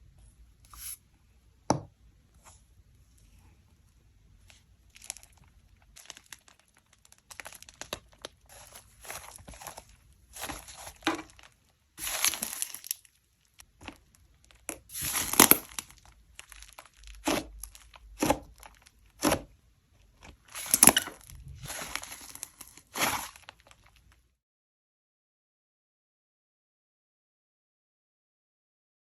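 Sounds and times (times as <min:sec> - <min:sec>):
slime squished by hand: 0:13.8 - 0:19.5, 0:20.2 - 0:24.0.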